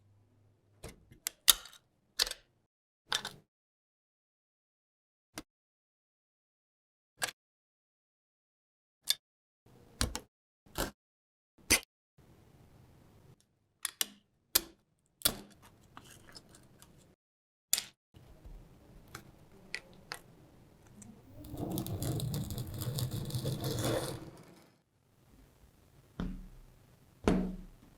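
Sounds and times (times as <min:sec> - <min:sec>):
scraping rattling noise: 0:21.3 - 0:24.8.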